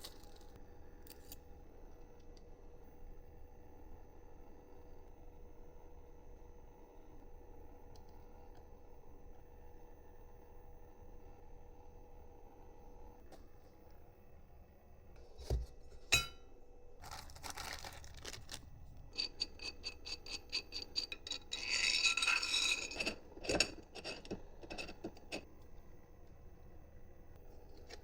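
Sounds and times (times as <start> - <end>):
scrape of tools: 19.2 - 25.5.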